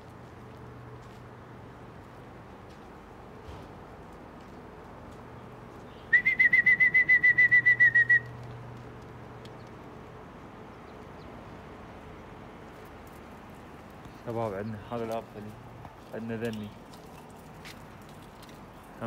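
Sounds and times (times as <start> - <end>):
trilling whistle: 6.1 - 8.4.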